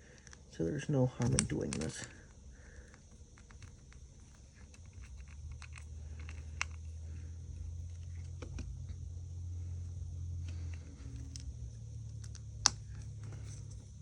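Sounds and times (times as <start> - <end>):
low steady hum: 0.0 - 14.0
small tools clicking and tapping: 1.2 - 6.9.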